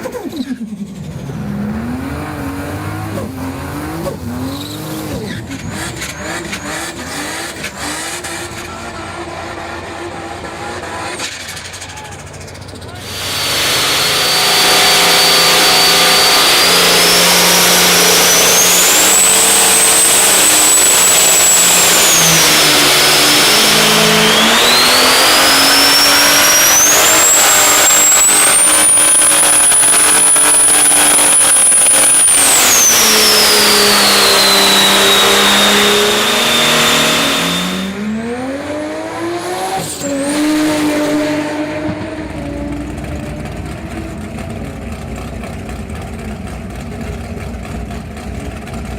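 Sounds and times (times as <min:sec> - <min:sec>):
engine running hard: 0:00.0 - 0:48.9
turbo whistle: 0:13.0 - 0:38.0.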